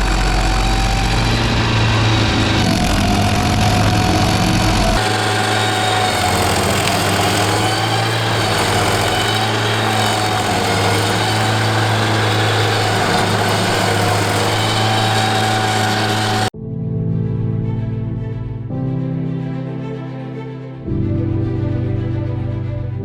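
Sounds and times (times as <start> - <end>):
stump grinder engine drone: 0.0 - 16.5.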